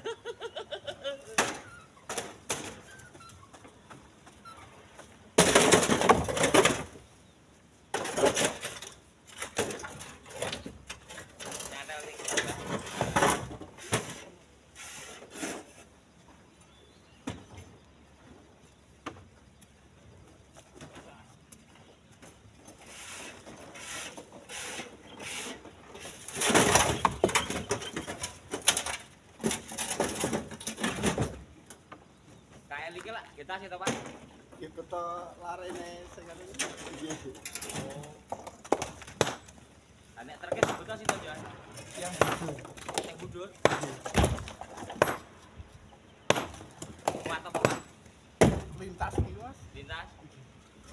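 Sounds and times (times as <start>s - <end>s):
stones clattering into truck bed: 5.4s - 7.0s, 7.9s - 14.4s, 26.0s - 31.6s, 35.8s - 39.6s, 40.4s - 45.4s, 46.3s - 49.4s
rocks clattering: 40.4s - 45.5s.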